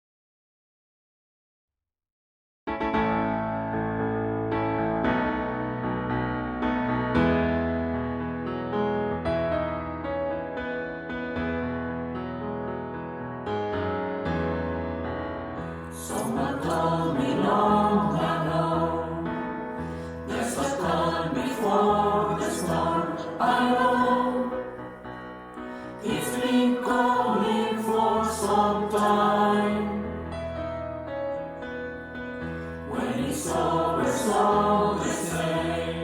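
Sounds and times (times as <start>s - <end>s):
keyboard accompaniment: 2.7s - 36.0s
mixed choir singing: 15.9s - 25.1s, 25.8s - 30.4s, 32.7s - 36.0s.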